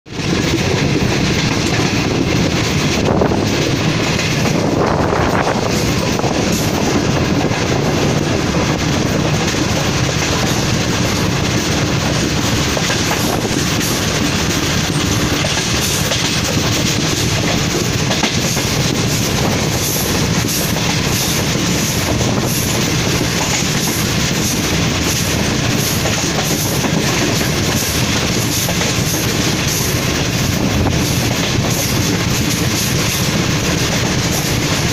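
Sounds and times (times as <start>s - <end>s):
train coaches rumbling: 0.1s - 34.9s
wheels clicking over rail joints: 5.4s - 34.9s.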